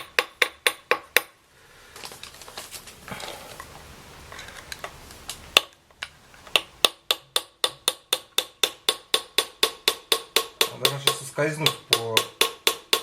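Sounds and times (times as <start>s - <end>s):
hammer tapping metal: 0.0s - 1.4s, 6.5s - 13.0s
handling and scraping: 1.7s - 6.6s.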